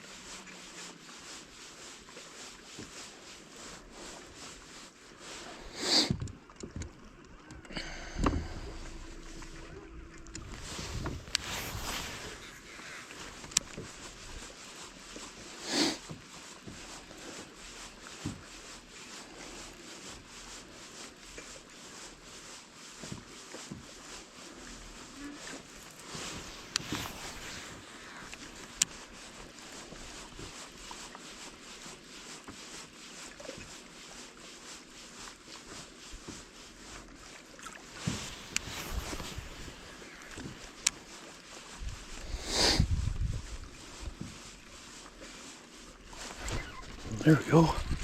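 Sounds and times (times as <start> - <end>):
low boat motor hum: 6.5 - 14.6.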